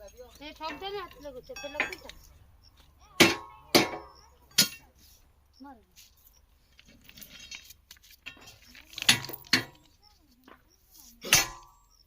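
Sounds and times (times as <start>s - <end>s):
metal-on-metal strikes ringing: 11.2s - 11.8s.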